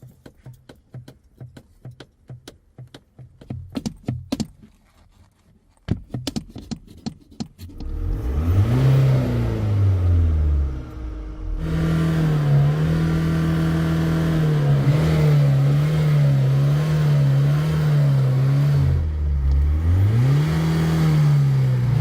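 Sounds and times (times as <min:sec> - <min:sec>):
sharp clicks and taps: 0:00.0 - 0:04.8, 0:05.8 - 0:07.9
diesel van engine revving: 0:07.7 - 0:22.0.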